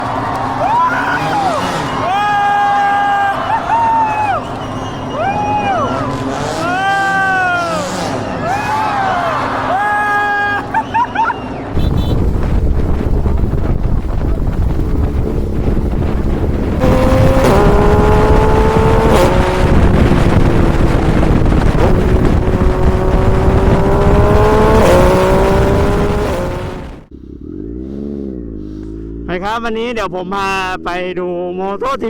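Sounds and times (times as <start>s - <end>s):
motorcycle engine accelerating: 3.6s - 8.6s, 11.6s - 29.6s
wind rush: 11.8s - 27.1s.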